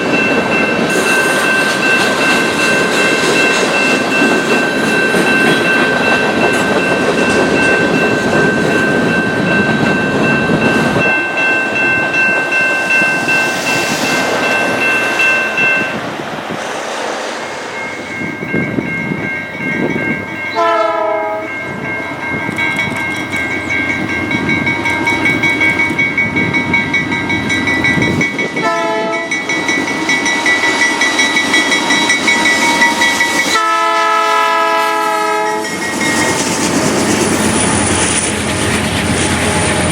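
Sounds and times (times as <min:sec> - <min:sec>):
steady high ringing tone: 0:00.0 - 0:16.0, 0:17.4 - 0:33.7, 0:35.4 - 0:38.5
train wheels rumbling on rails: 0:00.0 - 0:39.9
locomotive horn blasts: 0:20.6 - 0:21.5, 0:28.6 - 0:29.3, 0:33.5 - 0:35.7.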